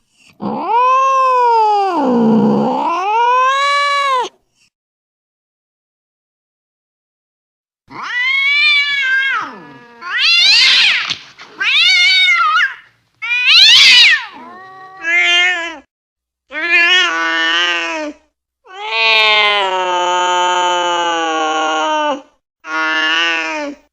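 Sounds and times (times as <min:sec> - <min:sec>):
angry cat yowling: 0:00.4 - 0:04.3, 0:07.9 - 0:15.9, 0:16.5 - 0:23.6.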